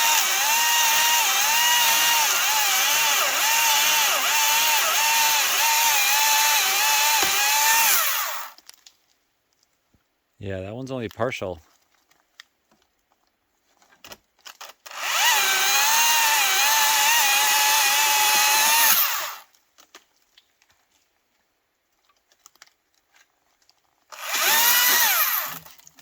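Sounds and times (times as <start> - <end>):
electric chainsaw cutting branch: 0.0 - 8.6, 14.9 - 19.5, 24.1 - 25.7.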